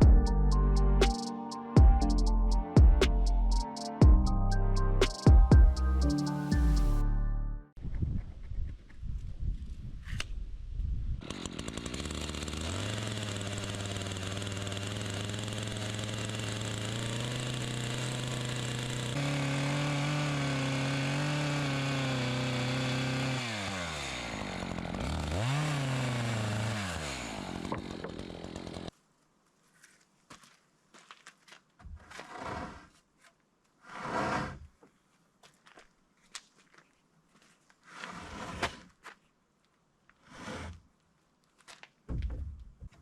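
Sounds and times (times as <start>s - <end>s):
chainsaw running: 11.2s - 28.9s.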